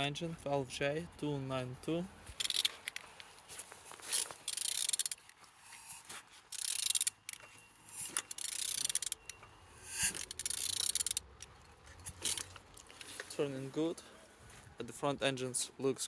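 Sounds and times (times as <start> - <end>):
ratchet wrench clicking: 2.4 - 3.0, 4.2 - 11.5.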